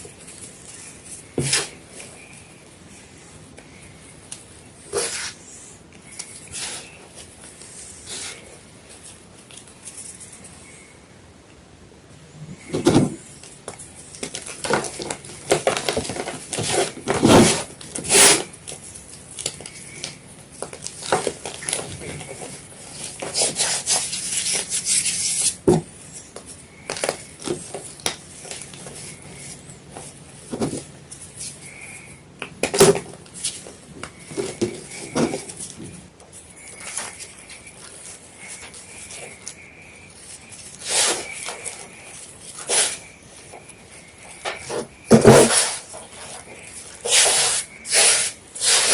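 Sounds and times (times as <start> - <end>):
chalk crunching and crumbling: 13.2 - 32.0, 32.6 - 48.9.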